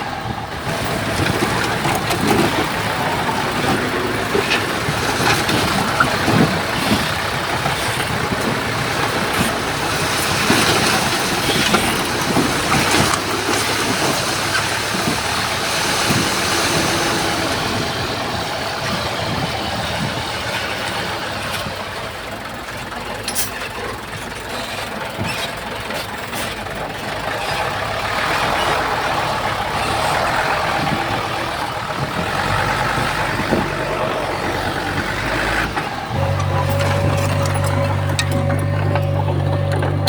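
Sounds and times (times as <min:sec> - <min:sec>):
diesel earthmoving machine running: 0:00.0 - 0:40.0.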